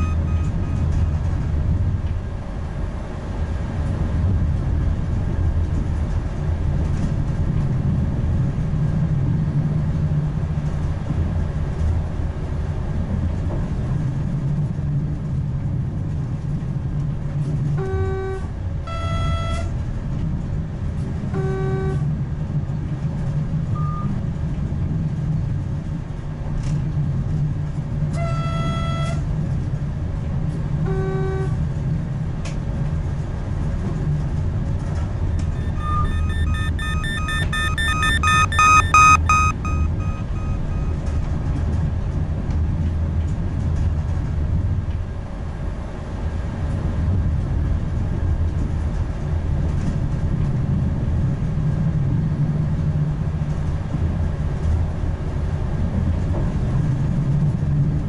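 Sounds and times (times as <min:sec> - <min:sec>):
two-pitch short tones: 0:00.0 - 0:01.1, 0:35.6 - 0:41.1
electric train rumbling: 0:00.0 - 0:23.7.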